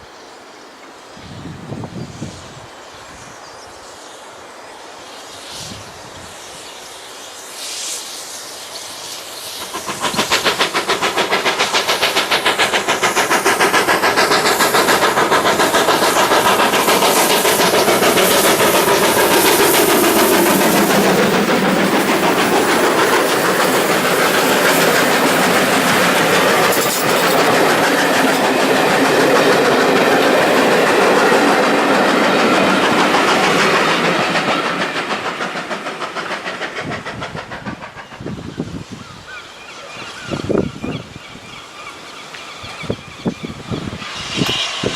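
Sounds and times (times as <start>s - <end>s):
steam train passing: 0.0s - 44.9s
wheels clattering on rails: 9.4s - 38.8s.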